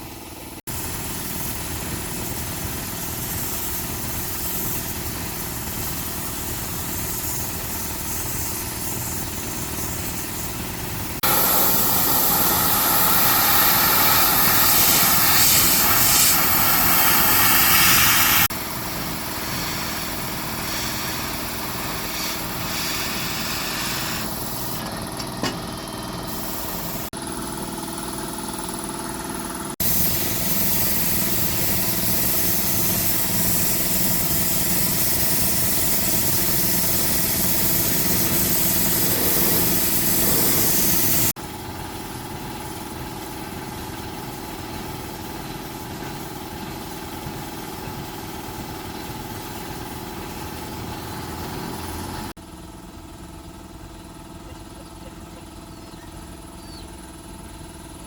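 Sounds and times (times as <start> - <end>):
small machine running: 0.0 - 58.0
loud harsh machine noise: 7.5 - 52.3.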